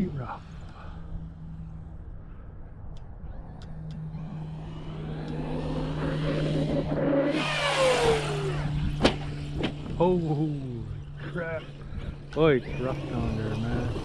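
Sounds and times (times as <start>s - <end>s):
off-road vehicle engine revving: 3.3s - 14.0s
loud rush of noise: 3.4s - 9.0s.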